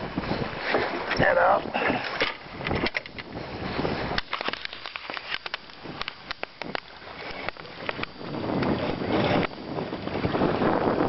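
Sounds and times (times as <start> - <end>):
wind noise on microphone: 0.0 - 11.0
fishing tackle clicks and knocks: 2.0 - 3.3, 4.2 - 8.7.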